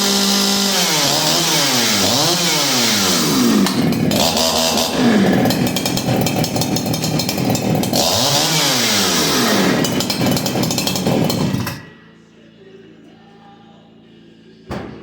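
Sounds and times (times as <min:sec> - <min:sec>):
chainsaw running at high revs: 0:00.0 - 0:11.8.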